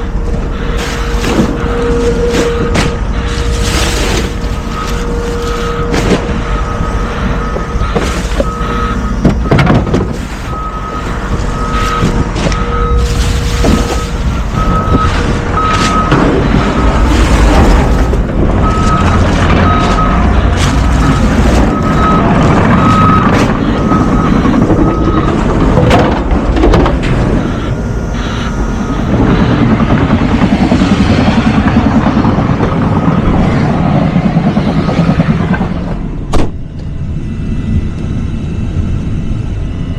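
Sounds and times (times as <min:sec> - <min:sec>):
diesel engine running: 0:00.0 - 0:39.9
backup alarm beeping: 0:00.4 - 0:26.2, 0:27.0 - 0:31.4
knocks and clunks: 0:07.4 - 0:27.4.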